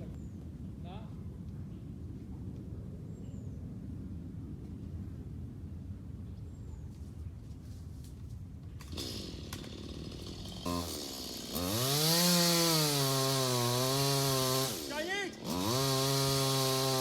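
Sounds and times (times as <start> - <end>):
chainsaw revving: 8.8 - 17.0.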